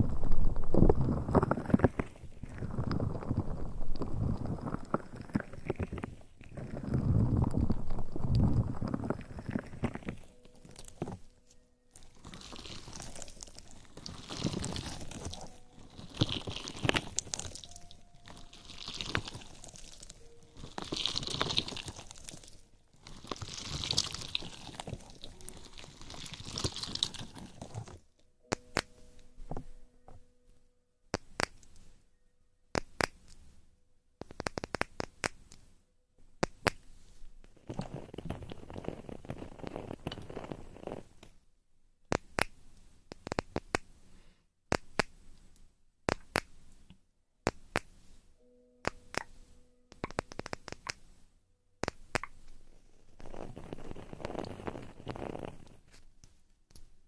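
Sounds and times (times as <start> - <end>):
close rustling and crinkling: 0.0 - 28.1, 52.0 - 56.5
sharp clicks and pops: 0.0 - 30.2, 31.1 - 31.9, 32.7 - 33.5, 34.2 - 41.4, 42.1 - 44.0, 44.7 - 48.0, 48.8 - 51.1, 51.8 - 56.9.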